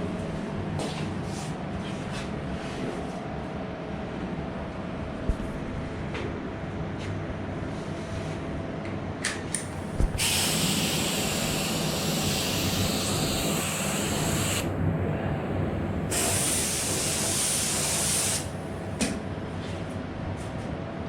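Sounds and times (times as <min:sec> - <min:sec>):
low mechanical hum: 0:00.0 - 0:21.0
paint spray gun hissing: 0:09.9 - 0:14.7, 0:16.1 - 0:18.6.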